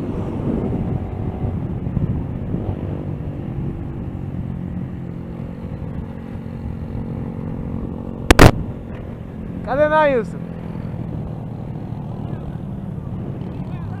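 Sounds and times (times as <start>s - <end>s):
motorcycle engine running: 4.5s - 14.0s.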